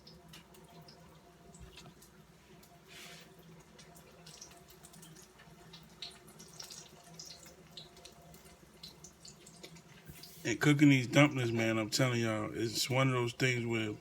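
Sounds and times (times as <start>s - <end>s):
dough frying in oil: 0.0s - 14.0s.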